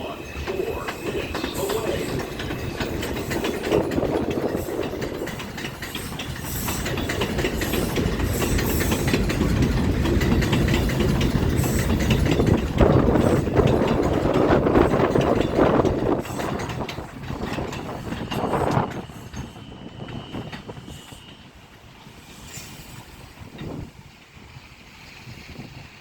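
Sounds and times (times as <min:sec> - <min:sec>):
subway train on elevated track: 0:00.0 - 0:26.0.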